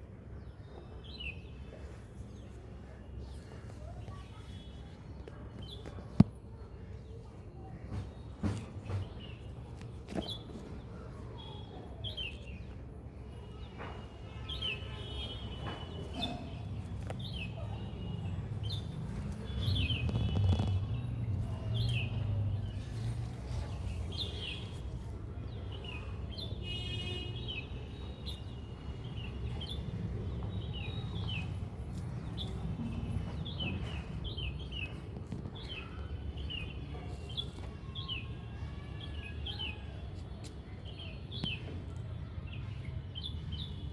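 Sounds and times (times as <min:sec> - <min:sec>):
small birds chirping: 0:13.4 - 0:41.8.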